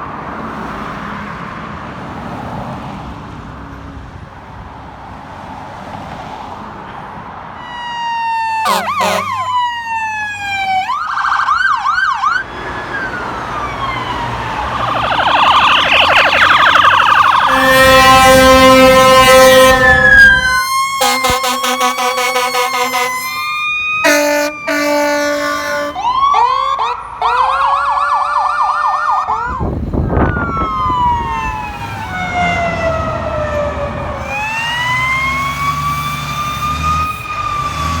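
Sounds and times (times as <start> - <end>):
electronic sirens wailing and yelping: 7.6 - 38.0
air horn blasts: 8.6 - 9.6, 17.3 - 26.0.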